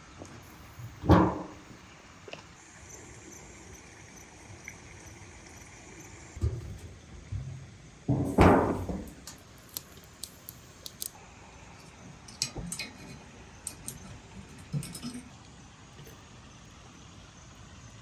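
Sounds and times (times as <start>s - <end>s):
heavy thud: 1.0s - 1.7s, 8.1s - 9.2s
light clicks and clinks: 8.3s - 11.2s, 11.8s - 16.2s.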